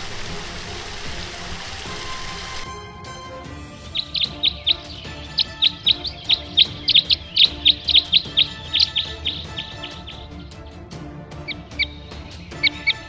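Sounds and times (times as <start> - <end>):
soft background music: 0.0 - 13.0
bird chirping: 3.8 - 10.8, 11.4 - 13.0.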